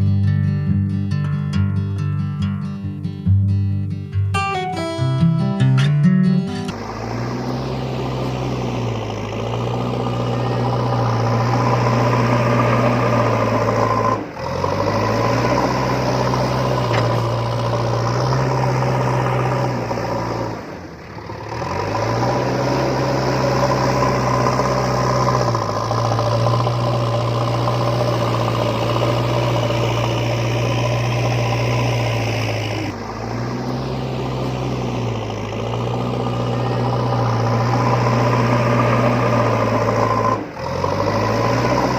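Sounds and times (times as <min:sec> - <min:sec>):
vehicle motor humming: 0:06.5 - 0:41.9.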